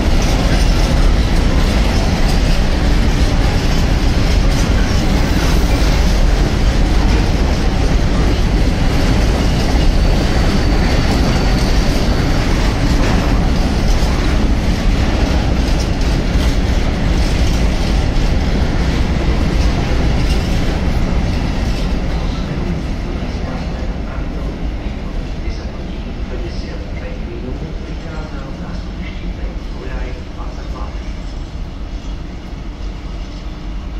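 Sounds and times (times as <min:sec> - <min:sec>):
wheels clicking over rails: 0:00.0 - 0:22.6
freight train rolling past: 0:00.0 - 0:33.9.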